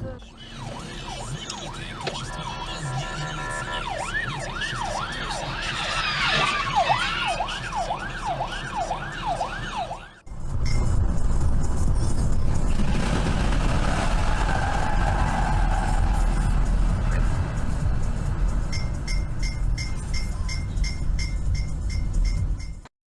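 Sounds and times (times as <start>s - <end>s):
loud low road rumble: 0.0s - 22.9s
emergency vehicle siren: 0.2s - 10.4s, 13.6s - 17.2s.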